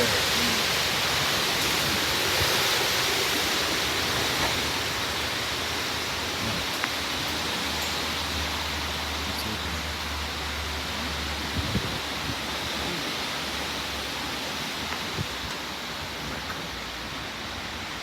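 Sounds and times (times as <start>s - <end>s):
strong wind rushing: 11.4s - 12.7s.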